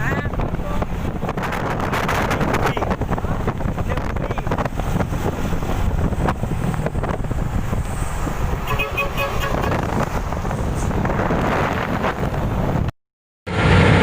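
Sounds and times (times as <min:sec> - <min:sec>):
traffic rumble: 0:00.0 - 0:12.9
wind rumble: 0:00.0 - 0:12.9
short horn toots: 0:08.6 - 0:09.9.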